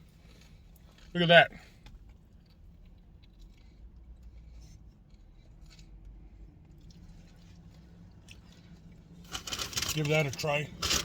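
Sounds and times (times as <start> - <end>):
objects handled clicks and rustles: 9.2 - 11.0.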